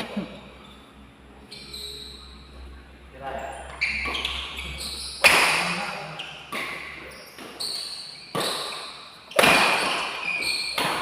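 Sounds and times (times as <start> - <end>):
court shoes squeaking: 0.0 - 2.7, 3.3 - 11.0
racket striking shuttlecock: 5.2 - 5.8, 6.4 - 11.0.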